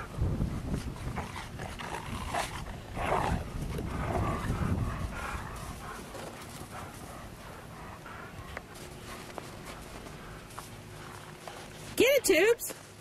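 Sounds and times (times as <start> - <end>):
dogs vocalizing: 0.8 - 11.7
dogs scuffling in snow: 8.6 - 13.0.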